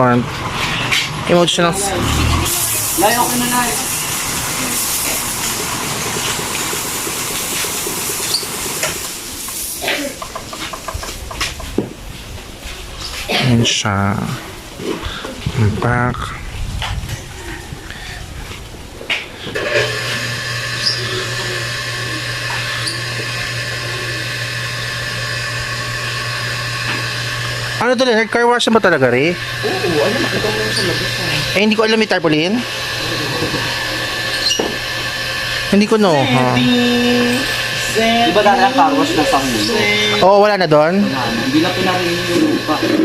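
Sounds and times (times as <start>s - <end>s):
electric motor humming and whining: 0.0s - 9.3s, 19.4s - 43.0s
pump pulsing: 0.0s - 11.3s, 19.4s - 43.0s
pressure washer spraying water: 0.4s - 11.7s, 19.6s - 43.0s.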